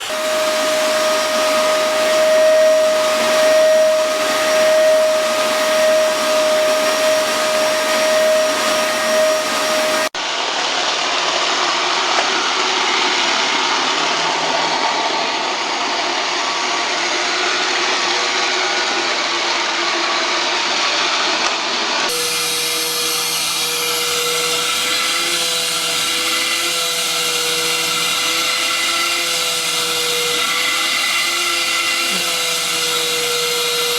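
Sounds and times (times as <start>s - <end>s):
vacuum cleaner whining: 0.0s - 33.9s.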